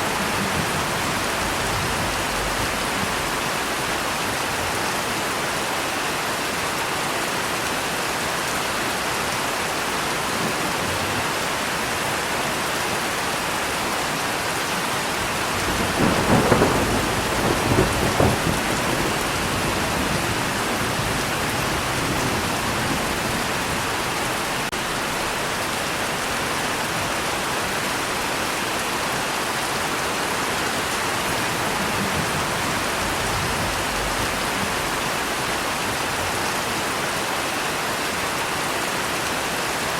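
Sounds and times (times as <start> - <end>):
thunder rumbling: 0.0 - 4.8, 15.1 - 24.6, 30.8 - 36.3
heavy rain: 0.0 - 39.9.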